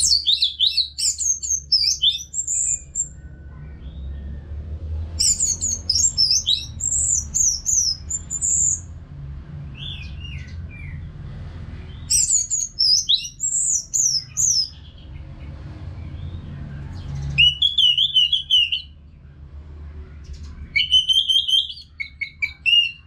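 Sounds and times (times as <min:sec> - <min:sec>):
thrush singing: 0:05.1 - 0:08.9.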